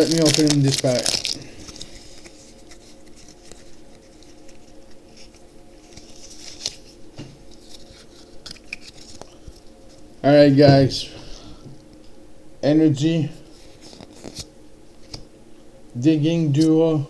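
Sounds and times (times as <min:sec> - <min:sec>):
foil pack rustling: 0:00.0 - 0:11.5
faint steady hum: 0:00.0 - 0:17.0.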